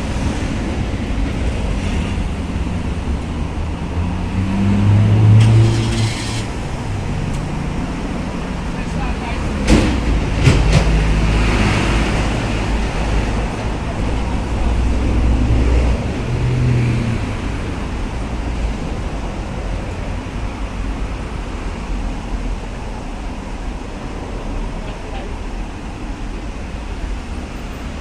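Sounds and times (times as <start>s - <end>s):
road noise: 0.0s - 28.0s
vehicle engine and tyres rumbling: 0.0s - 28.0s.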